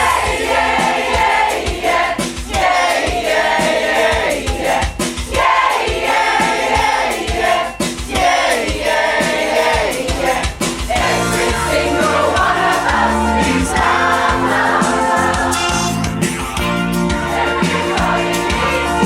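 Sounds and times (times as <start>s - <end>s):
choir singing a pop song: 0.0s - 19.0s
music with a steady beat: 0.0s - 19.0s.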